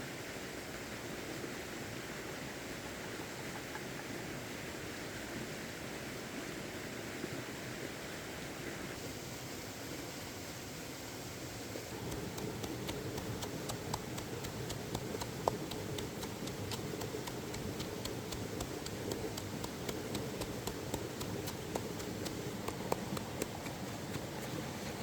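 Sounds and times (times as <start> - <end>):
flowing stream water: 0.0 - 25.0
cooking crackling pops: 11.9 - 25.0.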